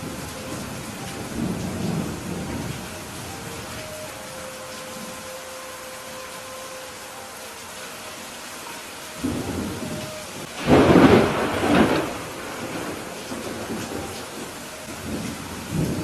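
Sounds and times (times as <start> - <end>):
thunder rumbling: 0.0 - 4.3, 9.2 - 16.0
steady rain falling: 0.0 - 16.0.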